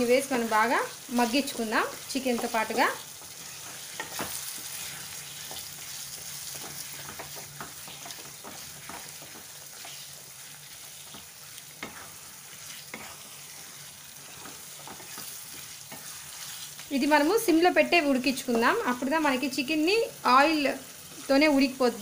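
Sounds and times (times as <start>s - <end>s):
food sizzling in oil: 0.0s - 22.0s
spatula scraping a pan: 0.4s - 17.3s.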